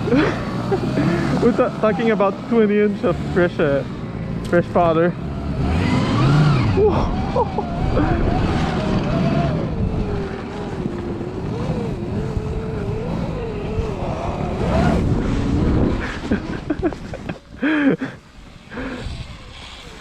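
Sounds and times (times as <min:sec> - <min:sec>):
rough rumble of track: 0:00.0 - 0:20.0
electric motor whine: 0:05.2 - 0:16.8, 0:18.2 - 0:20.0.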